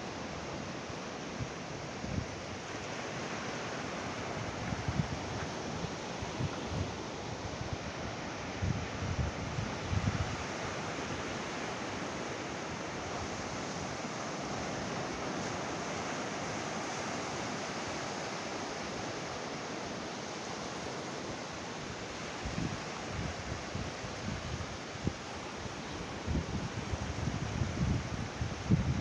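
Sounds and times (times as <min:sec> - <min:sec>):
ocean surf breaking on beach: 0:00.0 - 0:29.0
wind buffeting microphone: 0:04.2 - 0:10.6, 0:22.4 - 0:29.0.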